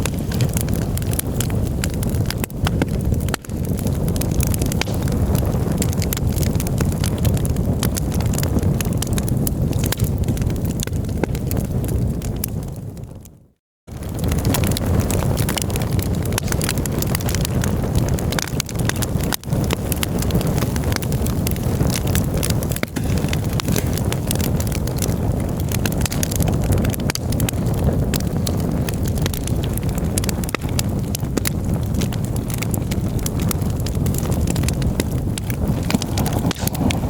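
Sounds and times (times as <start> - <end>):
campfire crackling and popping: 0.0 - 37.0
low rumble: 35.2 - 37.0.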